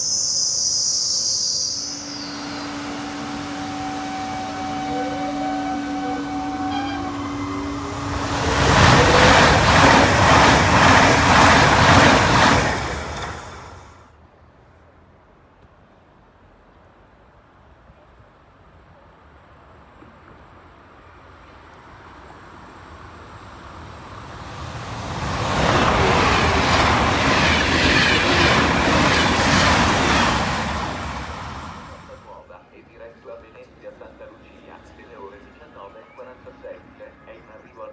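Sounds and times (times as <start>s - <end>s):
train passing at speed: 0.0s - 14.0s, 20.5s - 32.4s
steady tones: 0.2s - 14.0s.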